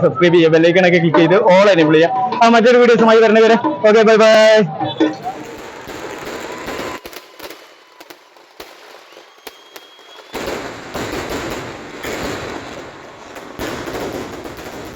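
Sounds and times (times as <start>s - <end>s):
fireworks bangs and crackling: 5.2s - 14.9s.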